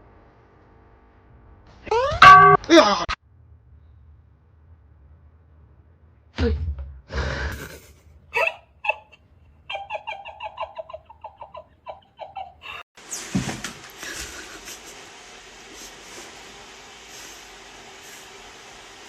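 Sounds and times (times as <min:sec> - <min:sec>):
person laughing: 0:07.5 - 0:12.8, 0:14.0 - 0:15.0.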